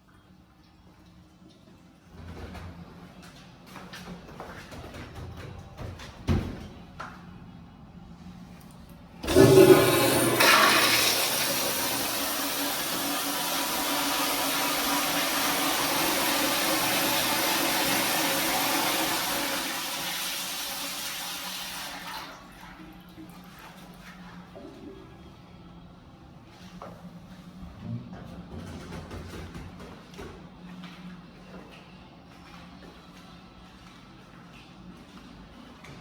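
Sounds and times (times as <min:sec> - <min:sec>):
toilet flushing: 0:09.2 - 0:25.3.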